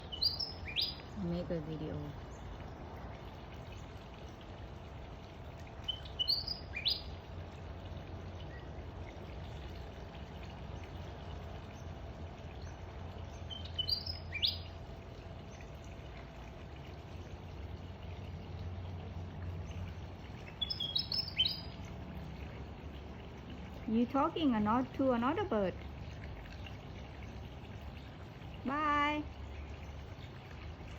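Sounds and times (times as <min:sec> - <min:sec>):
small bird chirping: 0:00.0 - 0:02.5, 0:05.9 - 0:07.2, 0:12.6 - 0:14.7, 0:20.4 - 0:21.8.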